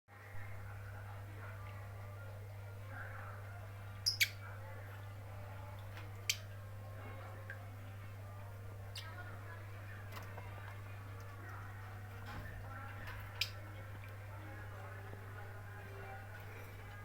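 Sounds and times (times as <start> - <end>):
lovebird chirping: 4.0 - 4.4.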